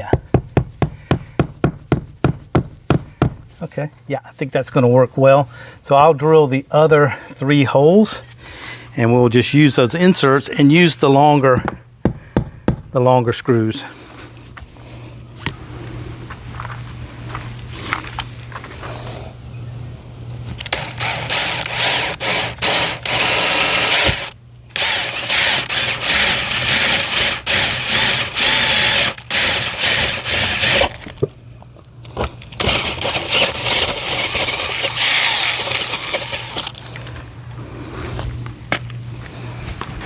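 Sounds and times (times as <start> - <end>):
steady low hum: 0.0 - 40.0
power drill boring into wall: 20.6 - 31.2, 32.6 - 36.9.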